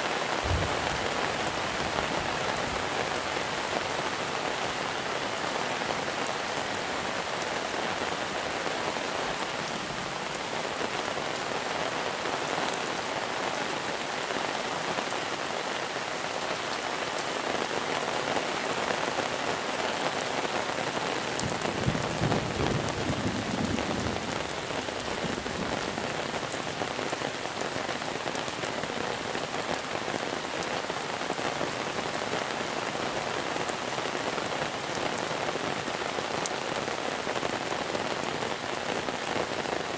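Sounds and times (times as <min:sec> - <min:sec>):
rain falling on surfaces: 0:00.0 - 0:39.9
low rumble: 0:00.5 - 0:02.2.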